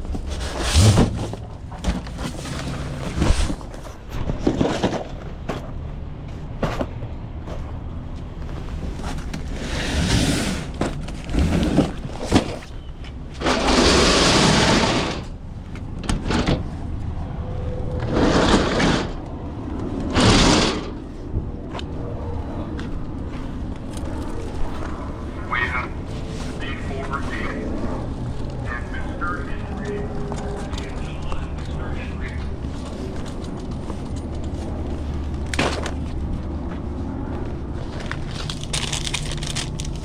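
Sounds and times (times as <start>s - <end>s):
low engine rumble: 14.4s - 40.0s.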